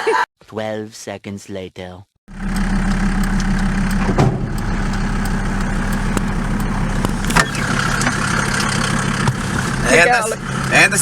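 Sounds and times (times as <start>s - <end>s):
diesel engine running: 2.3s - 11.0s.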